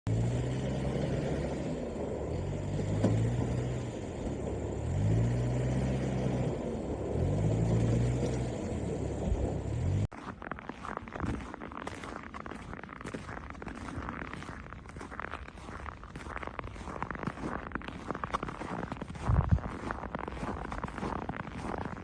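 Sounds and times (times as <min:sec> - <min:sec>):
vehicle engine revving: 0:00.0 - 0:10.1
steady low rumble: 0:00.6 - 0:10.1.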